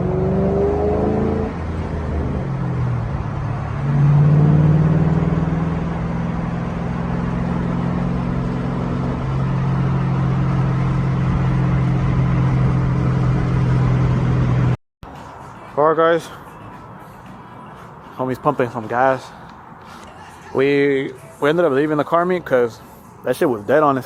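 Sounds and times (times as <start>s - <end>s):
car engine and exhaust running: 0.0s - 14.8s.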